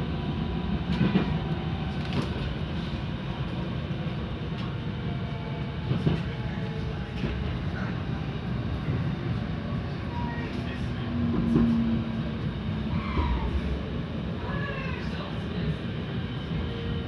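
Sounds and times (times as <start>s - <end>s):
train interior rumble: 0.0s - 17.0s.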